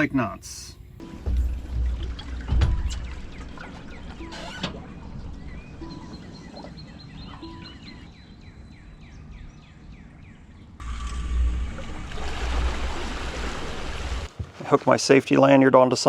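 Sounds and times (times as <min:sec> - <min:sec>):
birds chirping: 0:00.0 - 0:10.8.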